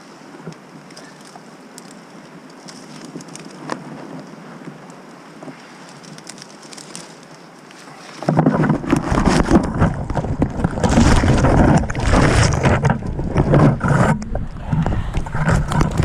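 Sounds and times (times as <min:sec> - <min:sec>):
wind buffeting microphone: 0:08.3 - 0:16.0.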